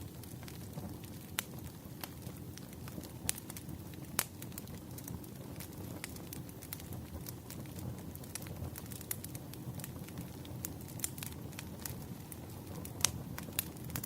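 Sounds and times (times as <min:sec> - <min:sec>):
burning wood crackles and pops: 0:00.0 - 0:14.0
fire rumbling: 0:00.0 - 0:14.0.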